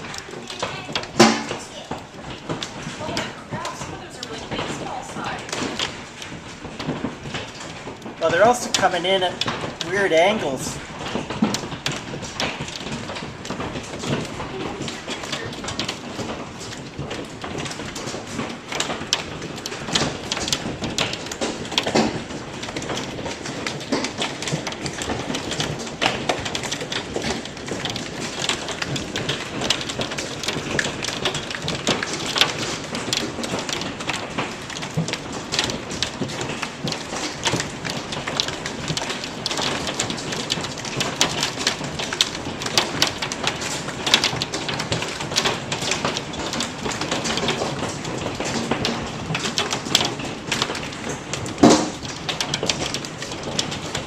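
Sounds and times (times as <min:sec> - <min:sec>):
hailstones pelting down: 0:00.0 - 0:54.0.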